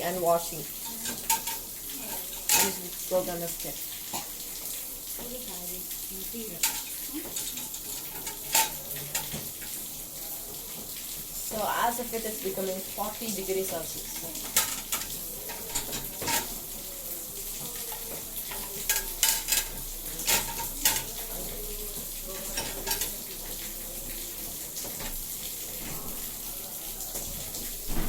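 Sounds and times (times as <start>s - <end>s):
washing machine drum sloshing: 0.0s - 28.0s
water splashes: 0.0s - 28.0s.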